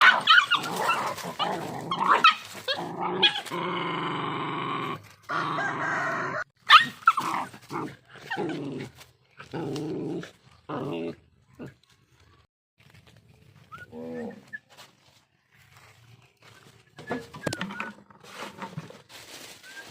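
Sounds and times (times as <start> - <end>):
dogs growling: 0.4 - 6.4, 7.2 - 11.9.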